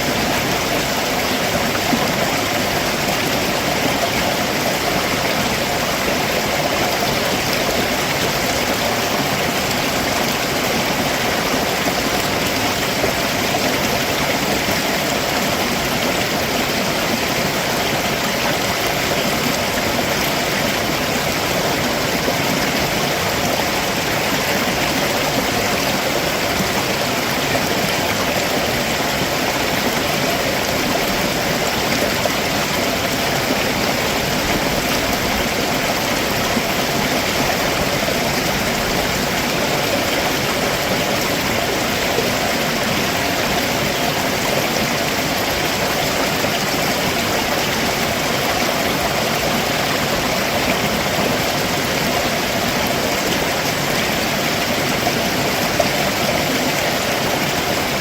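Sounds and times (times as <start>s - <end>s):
water rushing over rocks: 0.0s - 58.0s.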